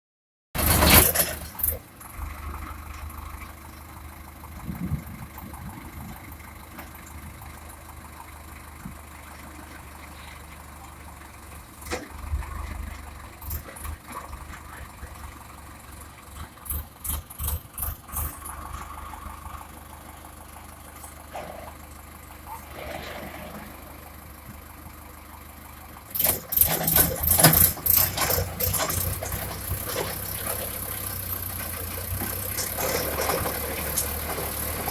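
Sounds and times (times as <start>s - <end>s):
tractor engine running: 0.6s - 34.9s
sharp knocks and clanks: 26.2s - 30.8s.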